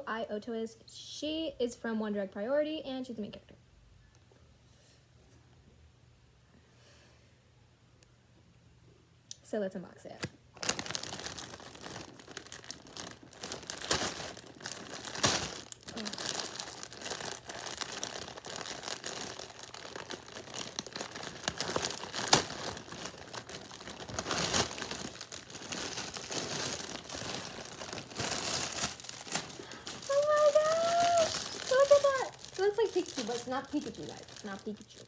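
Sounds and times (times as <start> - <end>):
packaging crinkling and tearing: 10.2 - 35.0.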